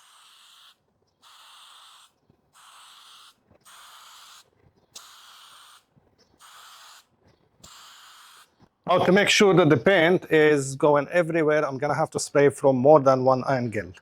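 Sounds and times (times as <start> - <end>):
spray paint can hissing: 0.0 - 8.8.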